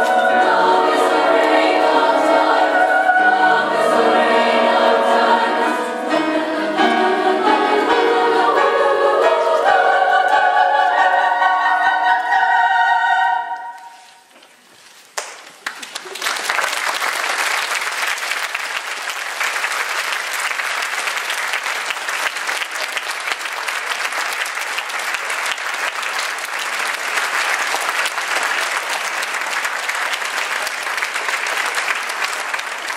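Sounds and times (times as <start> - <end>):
audience applauding: 15.2 - 32.9.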